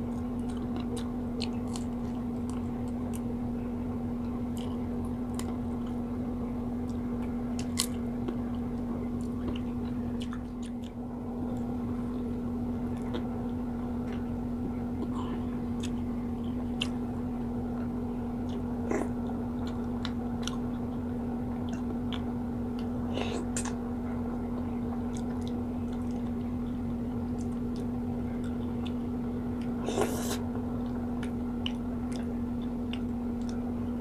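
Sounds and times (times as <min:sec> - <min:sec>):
person chewing fried fish: 0:00.0 - 0:03.3, 0:06.8 - 0:12.3, 0:15.0 - 0:16.0, 0:17.7 - 0:23.8, 0:24.6 - 0:33.8
steady low hum: 0:00.0 - 0:34.0.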